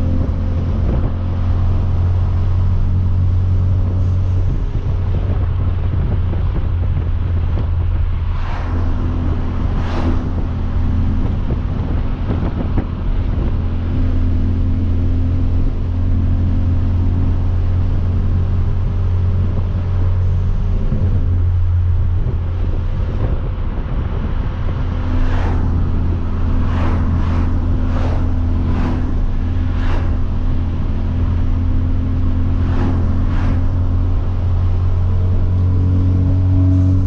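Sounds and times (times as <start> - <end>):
car engine droning: 0.0 - 37.0
road and wind noise: 0.0 - 37.0
turbo whooshes: 8.1 - 10.5, 25.0 - 37.0.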